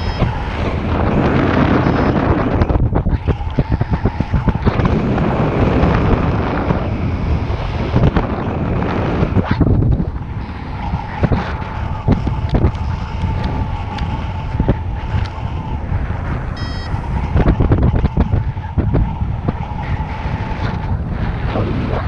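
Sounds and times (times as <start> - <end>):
short beep: 0.0 - 0.3, 16.6 - 17.1
wind buffeting microphone: 0.0 - 22.0
faint high tone: 16.6 - 17.2.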